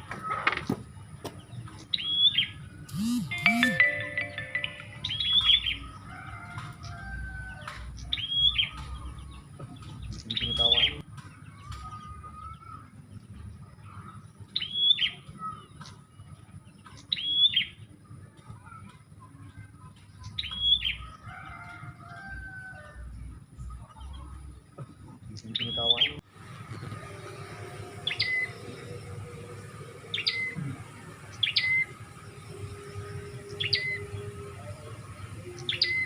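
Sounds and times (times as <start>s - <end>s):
bird chirping phrase: 1.9s - 5.9s, 10.1s - 11.0s, 25.3s - 29.0s.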